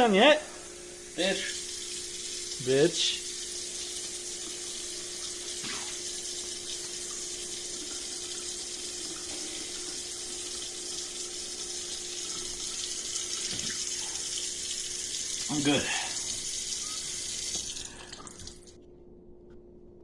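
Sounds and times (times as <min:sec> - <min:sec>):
water running from a tap: 0:01.0 - 0:18.8
low hum: 0:17.8 - 0:20.0.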